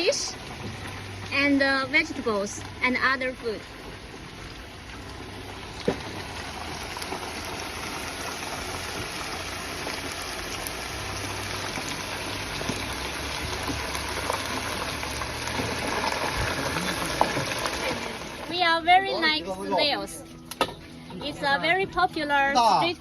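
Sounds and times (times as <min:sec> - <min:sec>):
food sizzling: 0:00.0 - 0:23.0.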